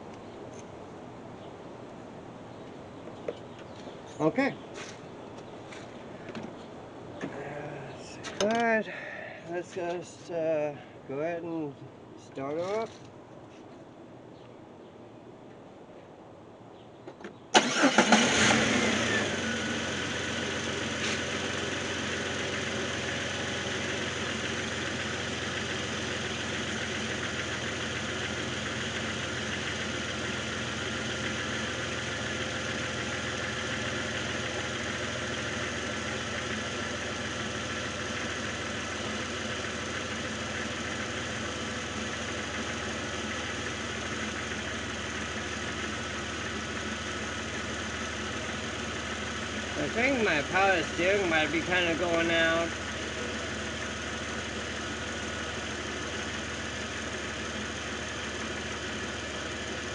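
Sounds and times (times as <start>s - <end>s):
car engine starting and idling: 17.5s - 59.9s.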